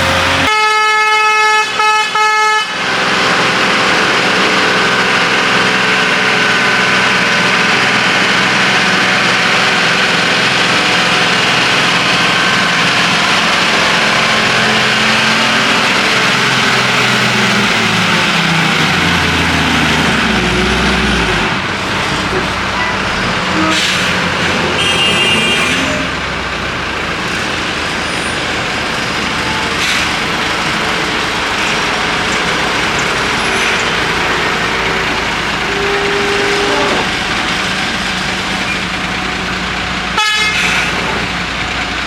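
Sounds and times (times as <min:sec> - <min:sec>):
lorry engine running hard: 0:00.0 - 0:00.6, 0:02.7 - 0:42.0
horn blaring: 0:00.0 - 0:02.8, 0:22.3 - 0:26.2, 0:32.7 - 0:37.6, 0:40.2 - 0:41.1.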